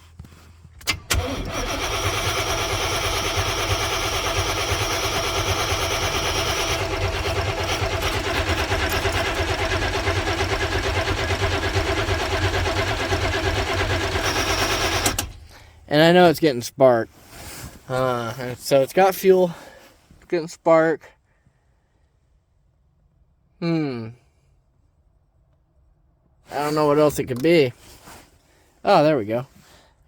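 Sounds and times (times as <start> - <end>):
van engine cranking: 0.8 - 15.8
starter click: 13.8 - 15.5.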